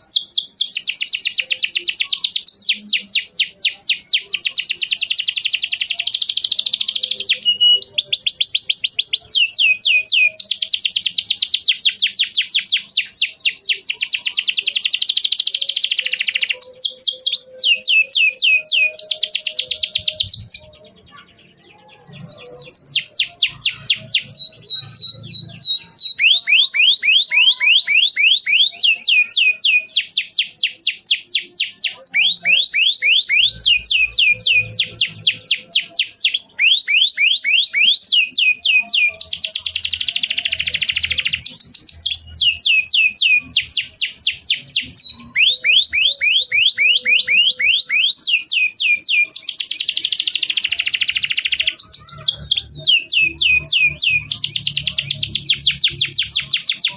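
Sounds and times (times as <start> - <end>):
canary singing trills: 0.0 - 56.9.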